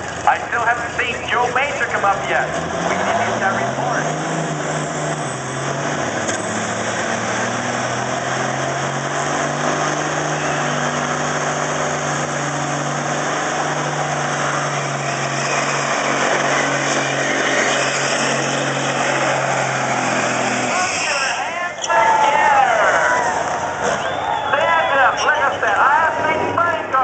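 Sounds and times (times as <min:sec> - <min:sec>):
diesel truck engine running: 0:00.0 - 0:27.0.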